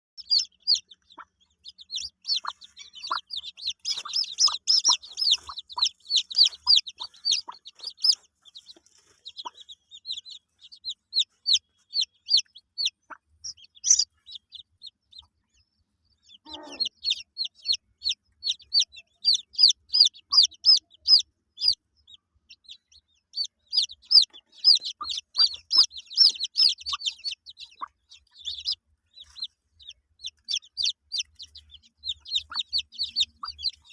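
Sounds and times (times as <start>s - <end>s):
hen clucking: 0.2s - 15.5s, 16.2s - 33.9s
chicks peeping: 0.2s - 33.9s.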